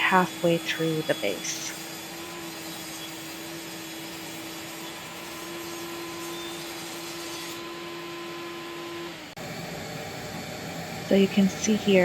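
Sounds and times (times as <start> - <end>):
power saw motor whirring: 0.1 - 9.4.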